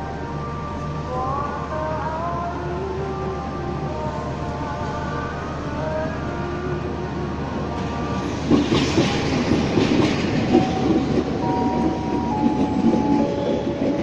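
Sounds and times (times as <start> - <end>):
train wheels clattering over joints: 8.2 - 14.0.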